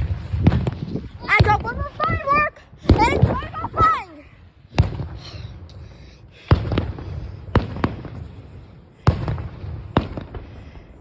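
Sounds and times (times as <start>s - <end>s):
fireworks bangs: 0.0s - 11.0s
small firework pops: 9.0s - 10.5s.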